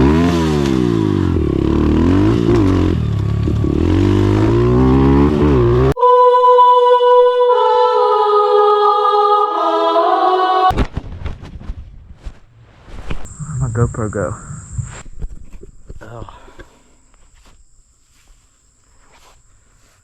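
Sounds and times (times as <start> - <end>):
dirt bike engine revving: 0.0 - 6.0.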